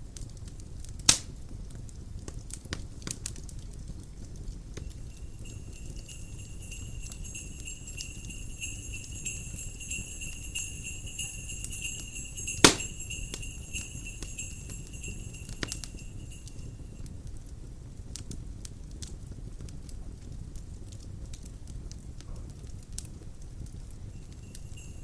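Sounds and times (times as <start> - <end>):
fire crackling: 0.0 - 25.0
sharp pop from fire: 1.0 - 1.3
sleigh bells jingling: 4.8 - 17.1, 24.0 - 25.0.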